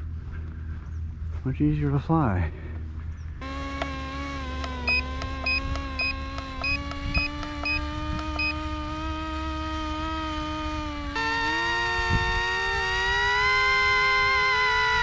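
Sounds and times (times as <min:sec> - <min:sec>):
toy plane motor whining: 0:03.4 - 0:15.0
faint high beep: 0:04.9 - 0:07.8.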